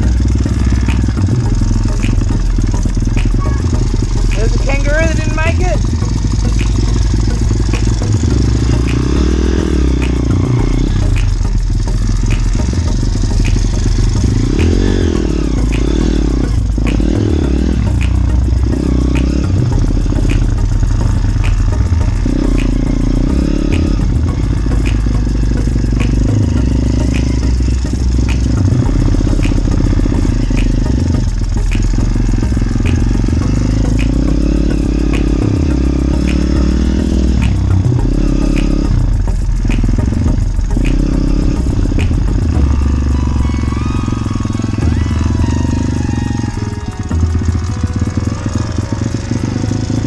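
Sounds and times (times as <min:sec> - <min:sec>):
light regular ticking: 0:00.0 - 0:50.0
small motorcycle engine revving: 0:39.7 - 0:50.0.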